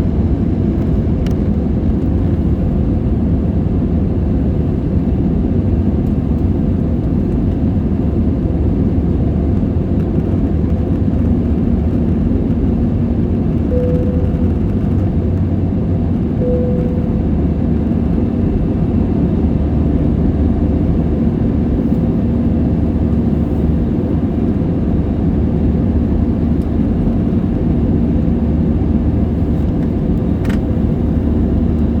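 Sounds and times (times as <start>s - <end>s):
jet engine cabin drone: 0.0s - 32.0s
faint cabin tones: 16.4s - 17.6s.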